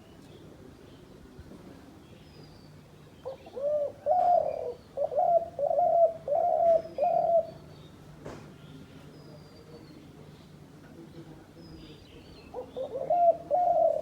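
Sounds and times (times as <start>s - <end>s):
dove cooing: 3.2s - 7.6s, 12.6s - 14.0s.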